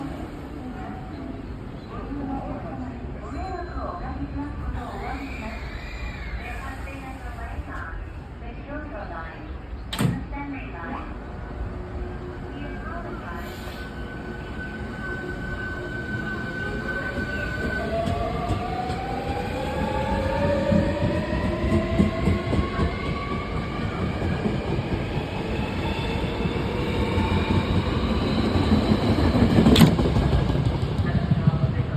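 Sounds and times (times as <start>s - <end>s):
wheels rumbling on rail: 13.5s - 31.9s.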